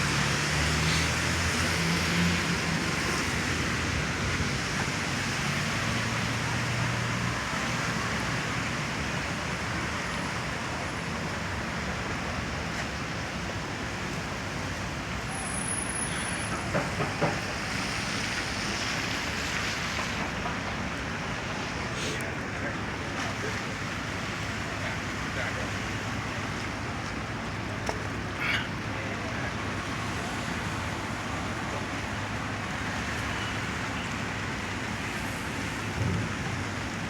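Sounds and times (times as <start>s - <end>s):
rain hiss: 0.0s - 37.0s
traffic on wet street: 0.0s - 37.0s.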